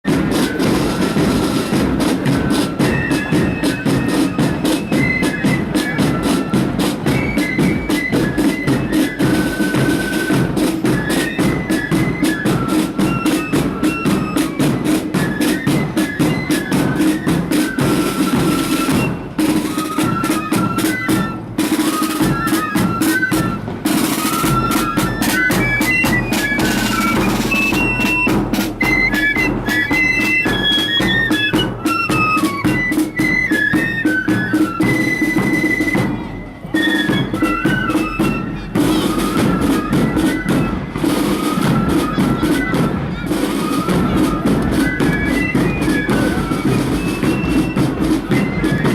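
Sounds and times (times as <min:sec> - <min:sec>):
snare drum rolls: 0:00.0 - 0:48.9
flute melody: 0:00.1 - 0:48.9.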